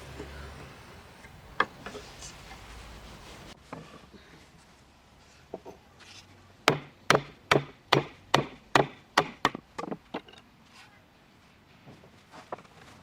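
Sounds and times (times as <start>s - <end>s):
tool knocking on wood: 6.7s - 10.0s.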